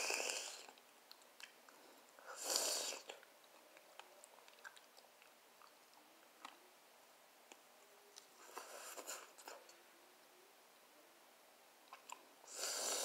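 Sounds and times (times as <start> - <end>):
person chewing and crunching: 3.0 - 6.6.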